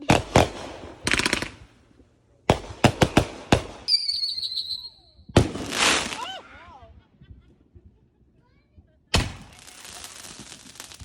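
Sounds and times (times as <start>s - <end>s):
fireworks bangs and crackling: 0.0s - 1.8s, 2.4s - 6.4s, 9.1s - 11.0s
high whistle: 3.9s - 5.4s.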